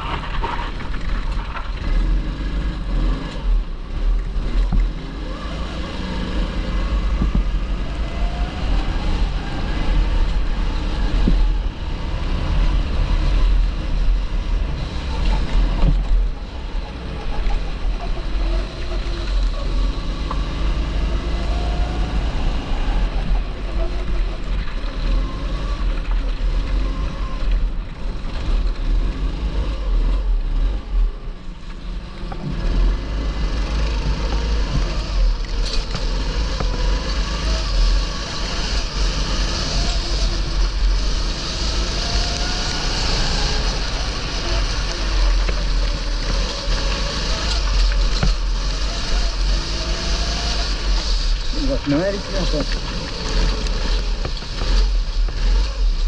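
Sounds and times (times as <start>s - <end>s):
wind rumble on microphone: 0.0s - 28.9s
kart engine revving: 0.0s - 56.0s.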